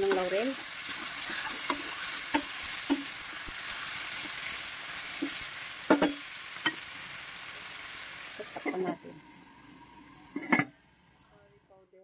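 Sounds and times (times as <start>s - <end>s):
spatula scraping and knocking pan: 0.0s - 3.6s, 5.2s - 6.8s
chicken sizzling in a pan: 0.0s - 11.5s.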